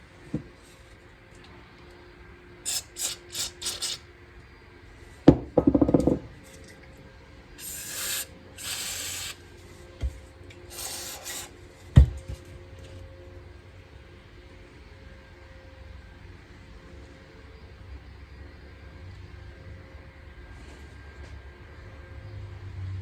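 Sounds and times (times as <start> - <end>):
hissing spray bursts: 2.7 - 4.0, 7.6 - 9.4, 10.7 - 11.5.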